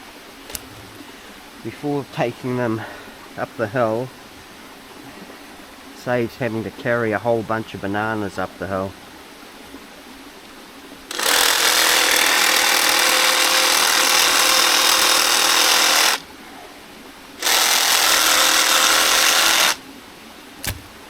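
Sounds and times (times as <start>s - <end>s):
reciprocating saw cutting: 11.1s - 16.3s, 17.4s - 19.8s, 20.6s - 21.0s.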